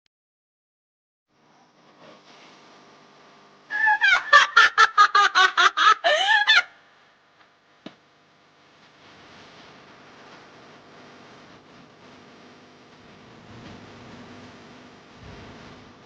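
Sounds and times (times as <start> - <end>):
chicken cackling: 3.7 - 6.8.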